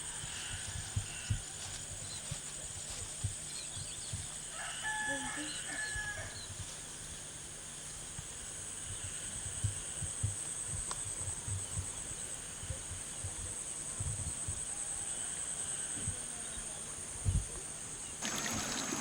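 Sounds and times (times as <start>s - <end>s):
insects chorus: 0.0s - 19.0s.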